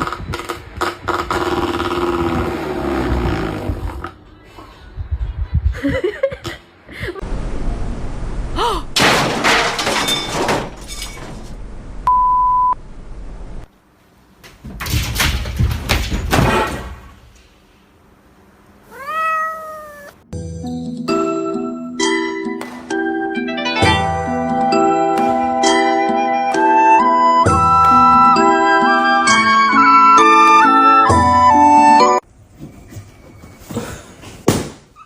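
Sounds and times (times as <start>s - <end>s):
short steady beep: 12.1s - 12.8s
cat meowing: 18.8s - 20.2s.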